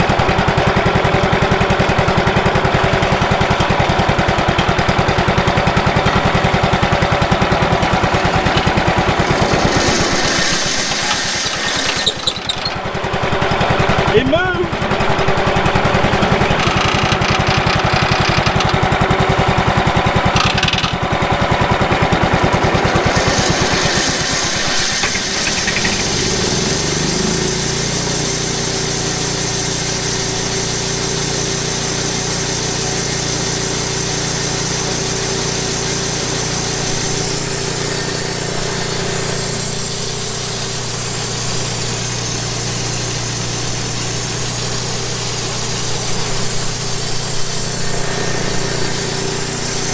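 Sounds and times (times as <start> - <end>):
sawmill gas engine running: 0.0 - 49.9
band blade hissing: 7.1 - 13.0, 22.8 - 31.1, 33.8 - 49.9.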